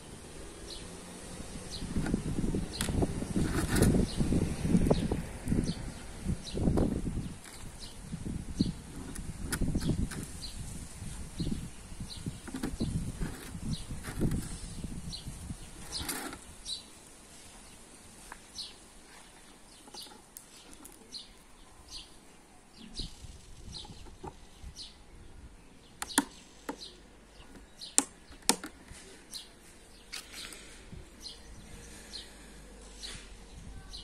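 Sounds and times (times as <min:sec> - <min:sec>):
birds chirping: 0:01.6 - 0:34.0
hard plastic clicks: 0:26.0 - 0:26.9, 0:27.5 - 0:29.0.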